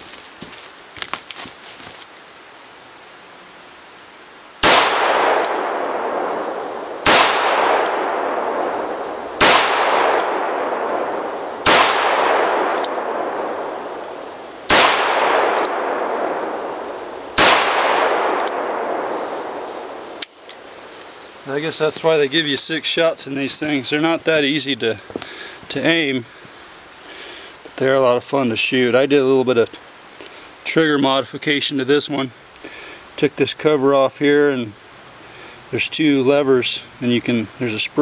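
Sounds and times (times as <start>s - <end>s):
revolver shots with long echo: 4.6s - 20.9s.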